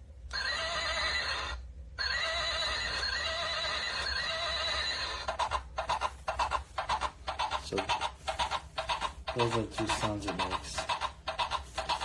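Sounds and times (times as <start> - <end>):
recorded horse whinny: 0.3 - 5.4
hoof clip-clop: 5.3 - 12.0.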